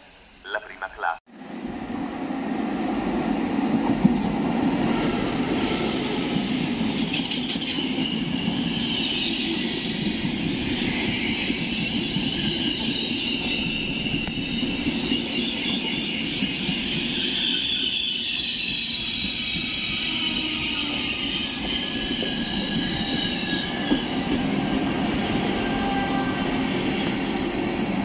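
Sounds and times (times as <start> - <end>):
train wheels rumbling on rails: 1.7 - 28.0
high-pitched wheel squeal: 10.7 - 24.2.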